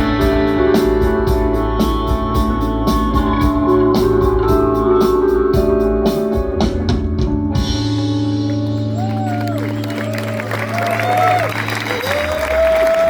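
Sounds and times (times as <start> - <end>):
steady drum beat: 0.0 - 8.2
guitar chords: 0.0 - 13.0
organ chords: 0.0 - 13.0.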